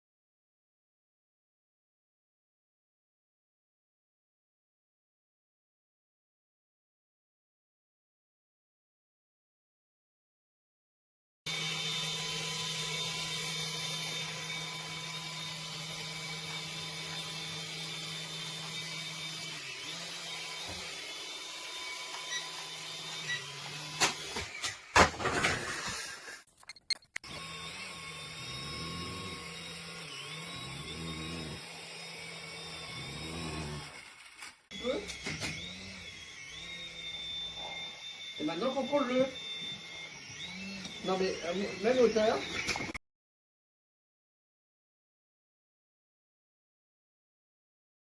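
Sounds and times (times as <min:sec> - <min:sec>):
toy helicopter rotors whirring: 0:27.2 - 0:43.0.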